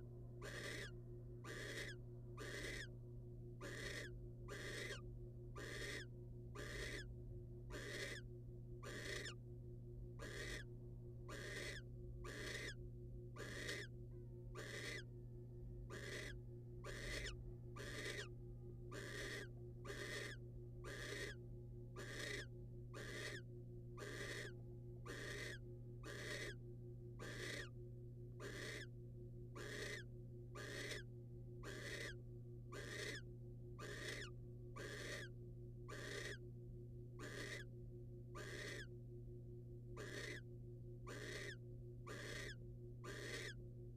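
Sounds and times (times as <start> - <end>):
low electrical hum: 0.0 - 43.9
owl rasping hisses: 0.5 - 0.9, 1.5 - 2.9, 3.6 - 5.0, 5.6 - 6.0, 7.8 - 8.2, 10.2 - 10.6, 11.3 - 12.8, 13.4 - 13.9, 14.6 - 15.0, 15.9 - 18.2, 19.0 - 21.4, 22.0 - 22.4, 23.0 - 23.4, 25.1 - 26.5, 27.2 - 27.7, 28.4 - 28.9, 29.6 - 30.0, 30.6 - 31.0, 31.7 - 32.2, 32.8 - 33.2, 33.8 - 35.3, 35.9 - 36.4, 37.2 - 37.6, 38.4 - 38.9, 40.0 - 40.4, 41.1 - 42.5, 43.1 - 43.5.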